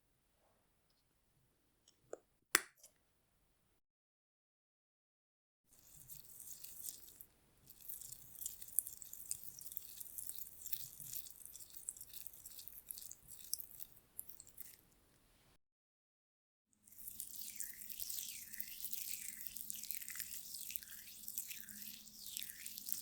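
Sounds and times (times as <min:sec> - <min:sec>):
face scrub rubbing: 0:05.8 - 0:14.8, 0:17.0 - 0:23.0.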